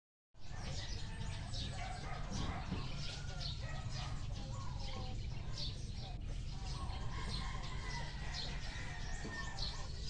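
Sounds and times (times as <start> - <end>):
birds chirping: 0.4 - 10.0.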